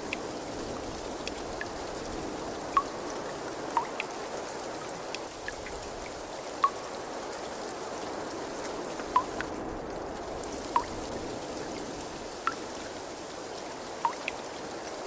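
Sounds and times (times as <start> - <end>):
water drips plinking: 0.0 - 0.3, 2.7 - 7.1, 9.0 - 9.6, 10.7 - 11.1, 12.4 - 12.8, 14.0 - 14.6
water rushing: 0.0 - 15.0.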